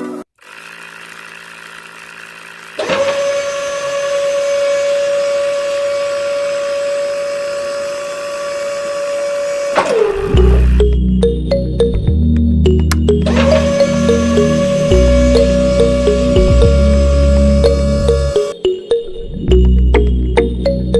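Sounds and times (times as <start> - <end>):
small electric motor whining: 0.4 - 10.8, 13.2 - 18.6.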